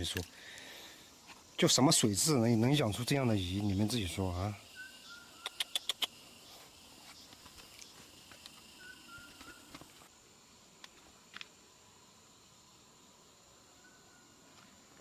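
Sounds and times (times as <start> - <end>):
high insect-like drone: 0.0 - 15.0
sharp clicks: 5.4 - 6.2.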